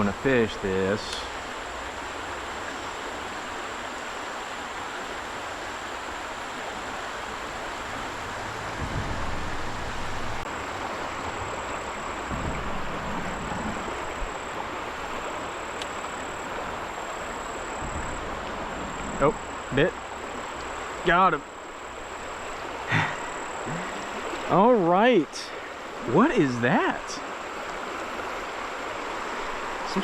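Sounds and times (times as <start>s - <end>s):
creek water rushing: 0.0s - 30.0s
soft low thumps: 8.8s - 10.4s, 12.2s - 14.3s
high-pitched insect drone: 11.2s - 24.7s.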